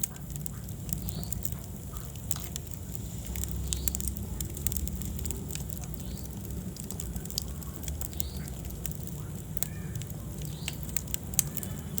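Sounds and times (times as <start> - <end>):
fire pops and snaps: 0.0 - 12.0
low rumble of flame: 0.0 - 12.0
wood fire crackling: 0.0 - 12.0.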